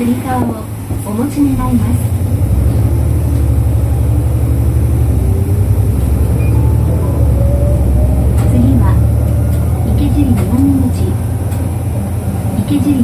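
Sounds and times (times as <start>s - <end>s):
bus diesel engine rumbling: 0.0s - 13.0s
faint rising whine: 2.4s - 12.6s.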